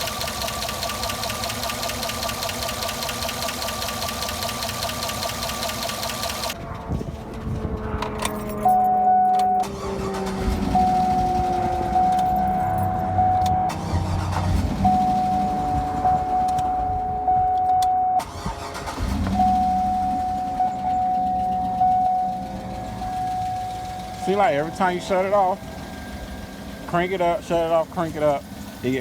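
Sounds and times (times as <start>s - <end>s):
engine ticking: 0.0s - 6.6s, 8.6s - 29.0s
car engine restarting: 0.0s - 29.0s
high warning tone: 8.2s - 28.5s.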